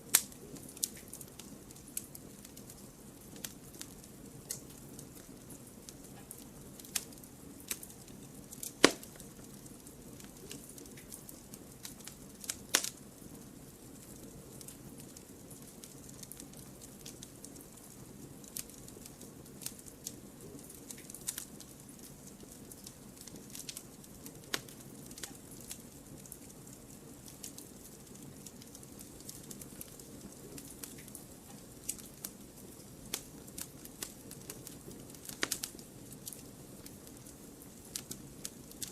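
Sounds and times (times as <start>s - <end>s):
fire pops and snaps: 0.0s - 38.9s
wood fire crackling: 0.0s - 38.9s.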